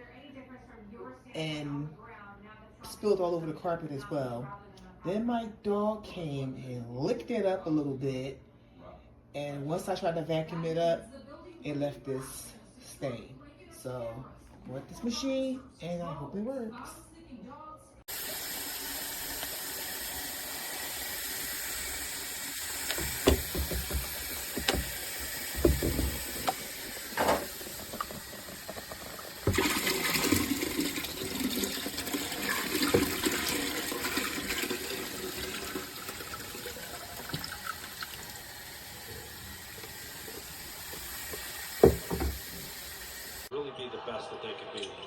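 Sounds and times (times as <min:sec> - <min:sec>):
carpet cleaner motor running: 0:18.1 - 0:36.1
knocks: 0:22.9 - 0:29.7, 0:41.3 - 0:42.8.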